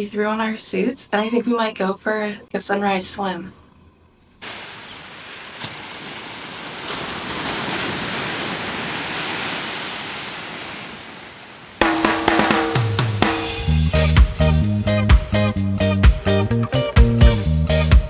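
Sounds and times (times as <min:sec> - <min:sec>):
ocean surf: 0:04.4 - 0:13.6
music with drums and bass: 0:11.8 - 0:18.0.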